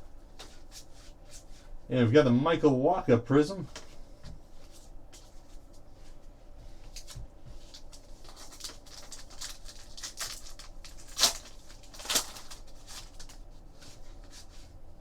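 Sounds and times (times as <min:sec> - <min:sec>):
foil wrapper ripping: 0:06.9 - 0:13.4
foil wrapper and cards crinkling: 0:06.9 - 0:14.4.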